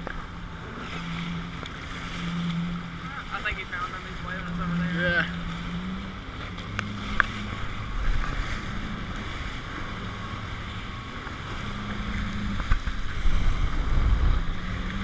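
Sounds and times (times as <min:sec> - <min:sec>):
jet ski engine running: 0:00.0 - 0:15.0
water noise: 0:00.0 - 0:15.0
wind buffeting microphone: 0:00.0 - 0:15.0.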